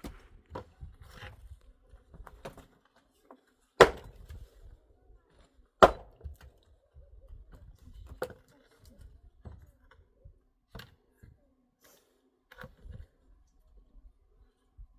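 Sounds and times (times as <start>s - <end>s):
chopping strikes on wood: 3.8s - 4.4s, 5.8s - 6.3s.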